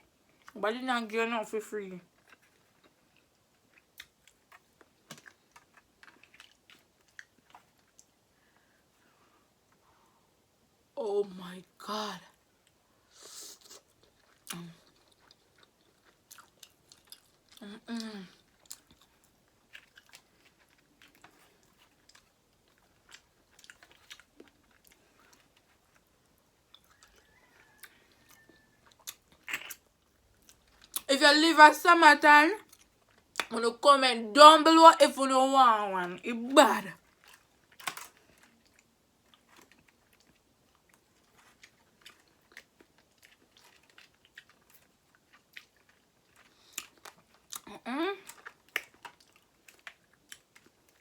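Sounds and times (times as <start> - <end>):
person chewing: 2.1 - 8.2, 12.6 - 31.1, 32.6 - 33.5, 37.0 - 51.0.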